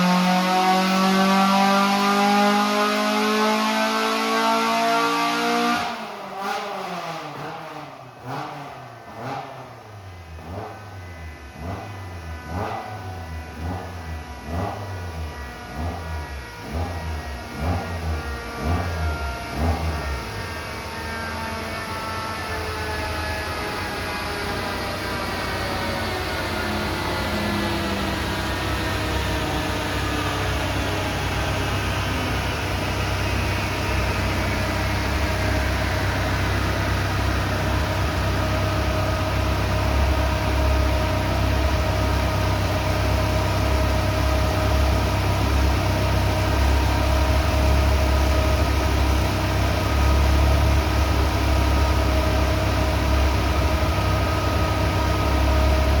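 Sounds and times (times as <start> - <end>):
car engine idling: 7.3 - 56.0
faint high whine falling in pitch: 11.2 - 41.0.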